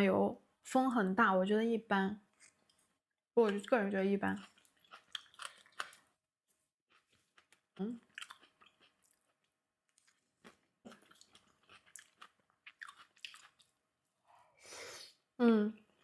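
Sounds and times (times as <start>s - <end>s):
person chewing food: 4.3s - 6.2s, 6.9s - 13.8s.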